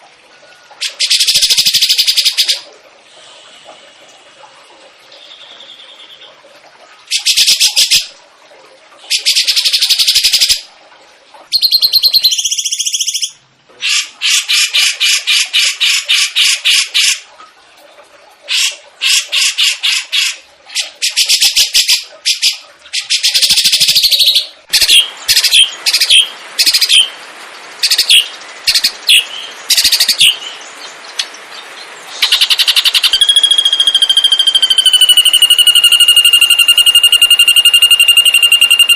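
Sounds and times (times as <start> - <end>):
sharp bird chirps: 11.6 - 13.3, 32.2 - 38.9
songbird trilling and chattering: 32.2 - 38.9.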